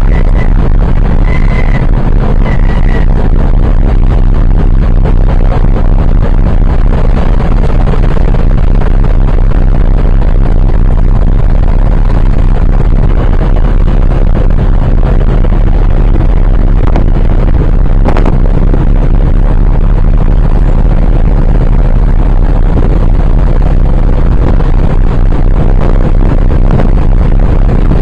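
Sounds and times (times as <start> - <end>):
low rumble: 0.0 - 28.0
wind buffeting microphone: 0.0 - 28.0.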